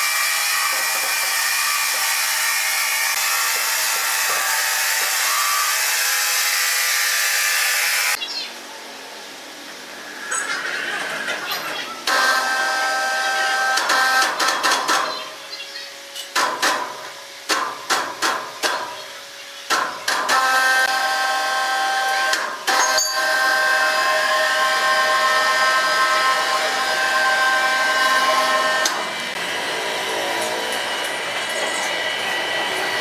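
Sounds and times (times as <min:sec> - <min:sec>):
sawmill saw whining: 0:00.0 - 0:08.2, 0:09.2 - 0:16.2, 0:19.2 - 0:33.0
sharp knocks and blows: 0:16.4 - 0:19.0.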